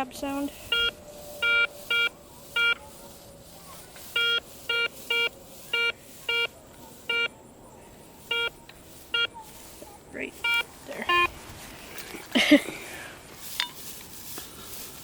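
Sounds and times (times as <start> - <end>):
metal detector beeping: 0.4 - 7.4, 8.2 - 11.4.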